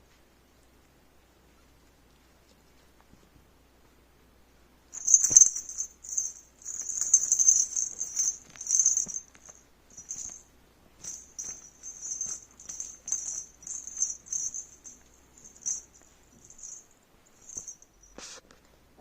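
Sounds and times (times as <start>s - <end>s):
small bell jingling: 4.9s - 18.2s.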